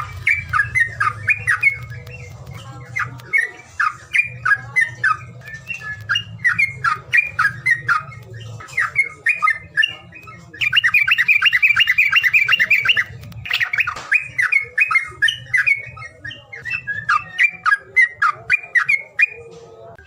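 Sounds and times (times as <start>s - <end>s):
fast rattling bird call: 10.6s - 19.3s.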